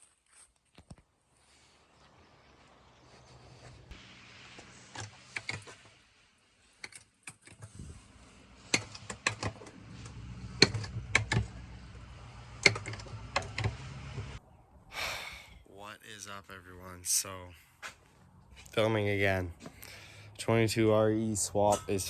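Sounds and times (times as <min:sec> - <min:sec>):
low steady hum: 0:01.4 - 0:22.0
sharp clicks and clatter: 0:08.6 - 0:11.9, 0:12.5 - 0:13.8.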